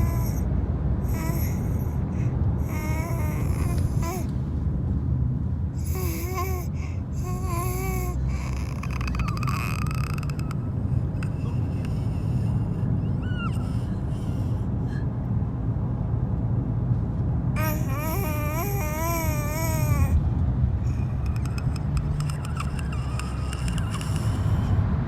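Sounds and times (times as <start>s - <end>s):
baby cooing: 0.0s - 0.4s, 1.1s - 2.0s, 2.6s - 4.3s, 5.8s - 14.5s, 17.6s - 20.2s, 20.9s - 24.7s.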